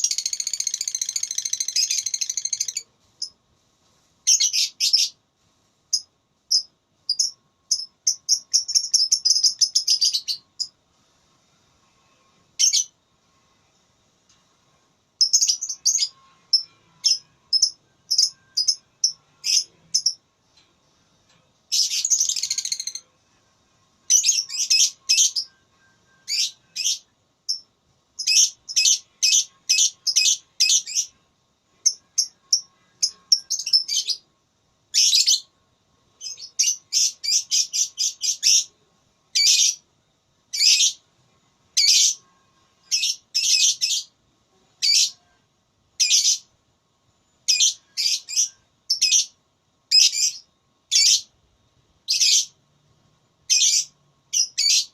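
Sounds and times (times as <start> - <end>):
lovebird chirping: 0.0 - 3.4, 4.2 - 5.2, 5.9 - 10.7, 12.6 - 12.9, 15.2 - 20.2, 21.7 - 23.1, 24.0 - 31.2, 31.8 - 34.2, 34.9 - 35.5, 36.2 - 39.8, 40.5 - 41.0, 41.8 - 44.1, 44.7 - 45.4, 46.0 - 46.5, 47.4 - 51.3, 52.0 - 52.6, 53.4 - 54.9.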